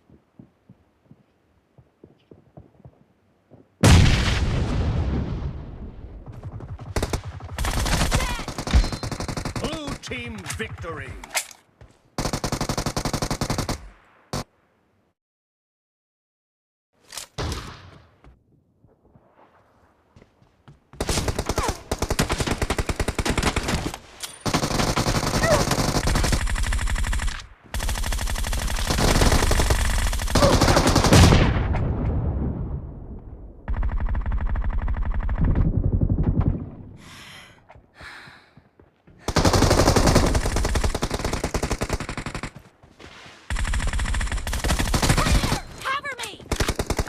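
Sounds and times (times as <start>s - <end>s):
video game automatic gunfire: 6.2s - 11.0s, 12.2s - 14.4s, 21.0s - 31.4s, 33.7s - 36.5s, 39.3s - 42.7s, 43.5s - 45.6s, 46.5s - 47.0s.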